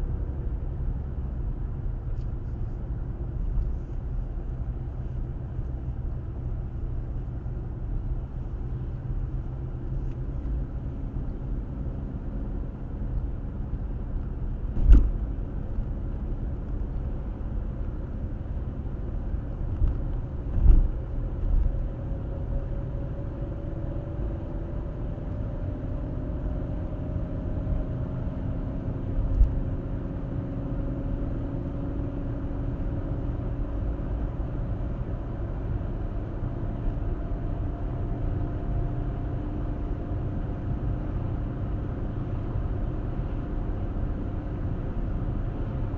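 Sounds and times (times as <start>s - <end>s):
road and engine rumble: 0.0s - 45.9s
short thumps: 14.7s - 15.3s.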